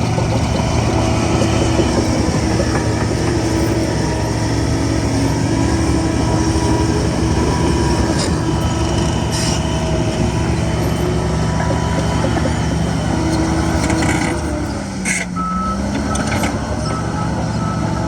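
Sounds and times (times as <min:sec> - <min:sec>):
steel tracks squealing and clanking: 0:00.0 - 0:15.4
bulldozer engine under load: 0:00.0 - 0:18.0
short metallic scrapes: 0:09.3 - 0:09.7.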